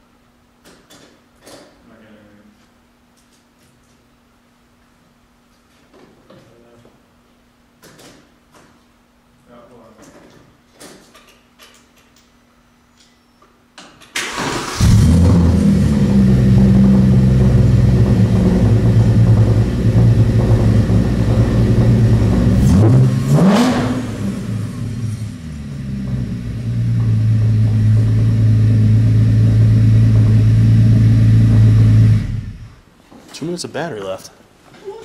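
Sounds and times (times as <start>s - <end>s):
car engine idling and revving: 14.6s - 32.8s.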